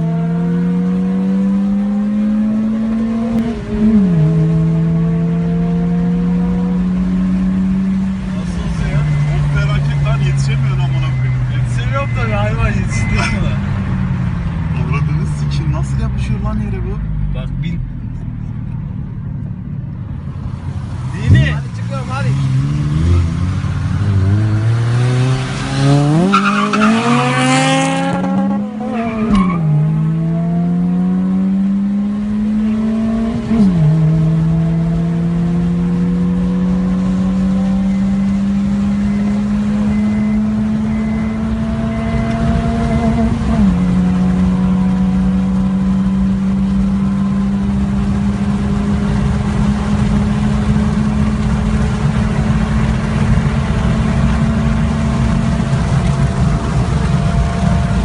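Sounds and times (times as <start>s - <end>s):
car engine accelerating hard: 0.0s - 58.0s.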